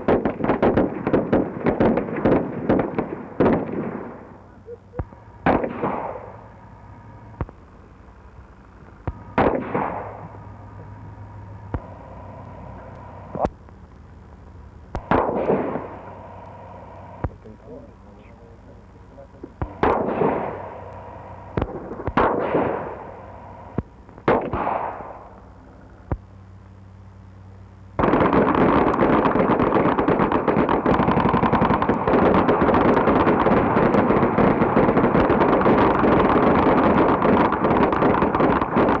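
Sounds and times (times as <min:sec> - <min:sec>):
rapid automatic gunfire: 0:00.0 - 0:04.2, 0:05.4 - 0:06.3, 0:09.4 - 0:10.2, 0:15.0 - 0:16.0, 0:19.6 - 0:20.7, 0:21.5 - 0:23.1, 0:24.3 - 0:25.2, 0:28.0 - 0:39.0
single gunshots echoing: 0:05.4 - 0:06.3, 0:09.1 - 0:10.4, 0:15.0 - 0:16.0, 0:19.6 - 0:20.8, 0:21.5 - 0:23.0, 0:24.2 - 0:25.3.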